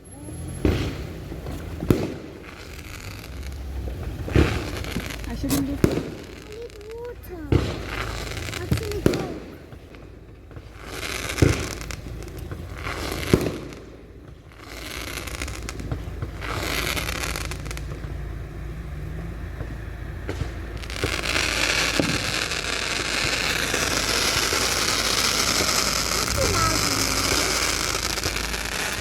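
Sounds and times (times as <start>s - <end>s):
firework bangs: 0.0s - 29.0s
firework crackling: 0.0s - 29.0s.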